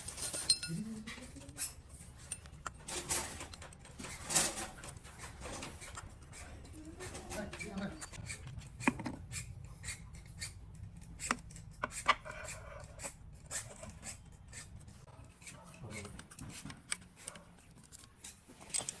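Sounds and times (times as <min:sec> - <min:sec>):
hand tools clicking and tapping: 0:00.0 - 0:19.0.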